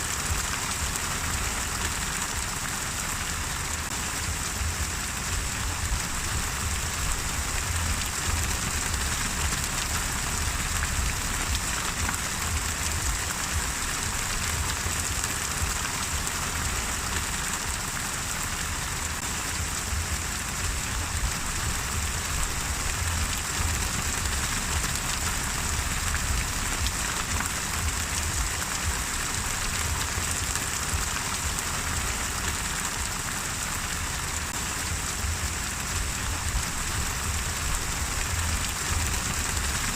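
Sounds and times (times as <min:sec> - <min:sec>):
steady rain falling: 0:00.0 - 0:39.9
low rumble: 0:04.2 - 0:16.8, 0:19.4 - 0:32.1, 0:34.6 - 0:39.9.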